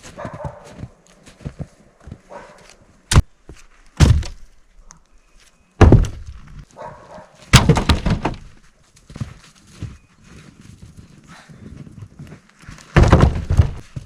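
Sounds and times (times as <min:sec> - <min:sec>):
wooden logs thunking: 0:03.1 - 0:04.6, 0:05.8 - 0:06.6, 0:07.4 - 0:08.6, 0:12.7 - 0:14.0
logs clattering tumble: 0:07.4 - 0:08.6, 0:12.6 - 0:14.0.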